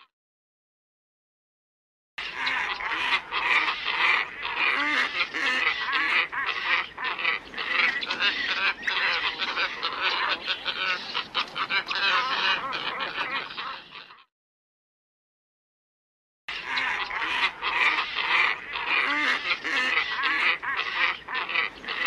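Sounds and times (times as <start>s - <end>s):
flock of birds calling: 2.2s - 14.3s, 16.5s - 22.0s.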